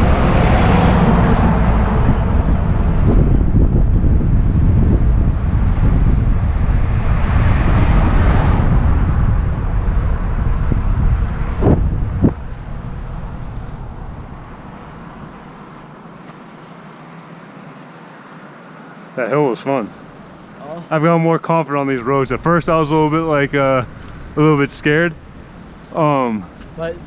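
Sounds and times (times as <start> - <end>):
wind buffeting microphone: 0.0 - 15.8, 22.0 - 27.0.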